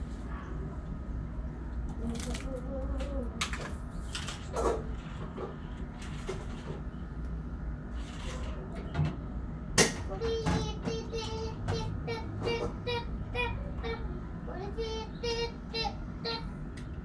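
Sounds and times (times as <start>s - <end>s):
child singing: 2.0s - 3.4s, 10.0s - 16.6s
steady low hum: 9.2s - 17.0s.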